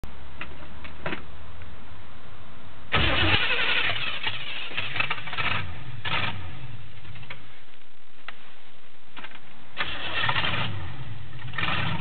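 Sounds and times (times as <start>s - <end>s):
engine cranking and firing: 2.9s - 7.4s, 9.2s - 12.0s.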